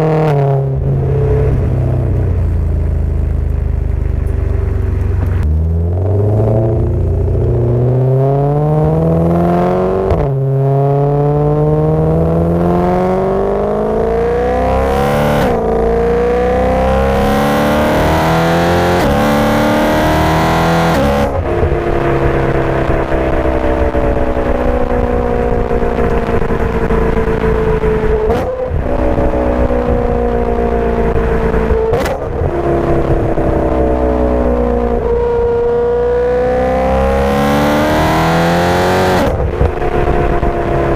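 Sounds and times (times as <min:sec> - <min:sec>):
car engine accelerating hard: 0:00.0 - 0:40.9.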